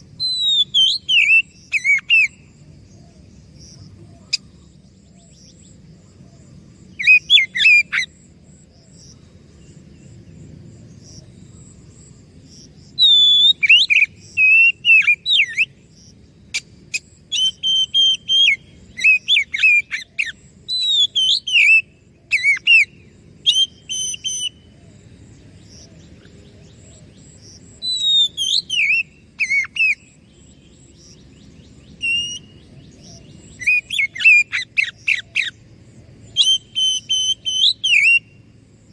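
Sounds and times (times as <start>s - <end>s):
songbird whistles and chirps: 0.1s - 8.2s, 12.9s - 15.9s, 16.5s - 38.9s.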